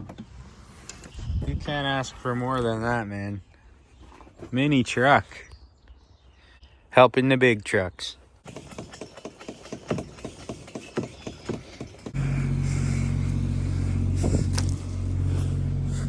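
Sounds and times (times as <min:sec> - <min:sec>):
small diesel engine running: 0:08.5 - 0:16.0.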